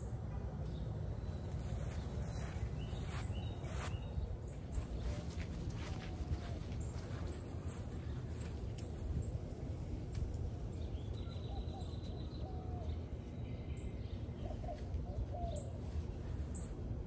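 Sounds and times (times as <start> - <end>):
steady low rumble: 0.0 - 17.0
low wavering bird calls: 1.5 - 8.5, 10.5 - 16.7.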